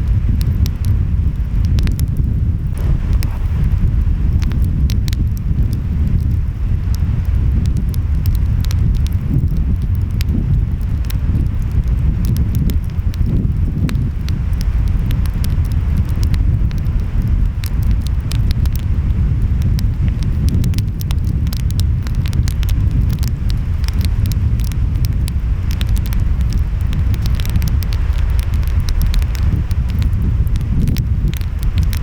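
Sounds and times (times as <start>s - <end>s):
wind: 0.0s - 32.0s
wood fire crackling and popping: 0.0s - 32.0s
ocean waves rumbling: 2.7s - 7.6s.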